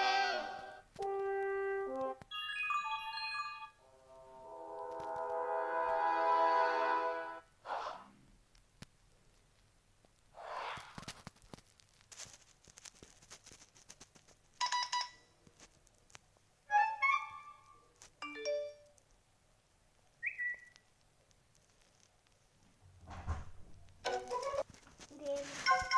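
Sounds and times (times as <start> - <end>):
phone ringtone and alert tones: 2.3 - 3.8, 14.6 - 15.3, 18.2 - 18.8, 25.6 - 25.9.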